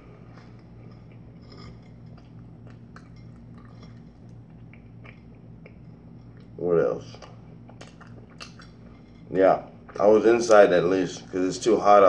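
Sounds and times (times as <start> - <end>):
person chewing bagel: 0.0 - 10.2
low hum: 0.0 - 12.0
mouth clicks and smacks: 4.6 - 8.8.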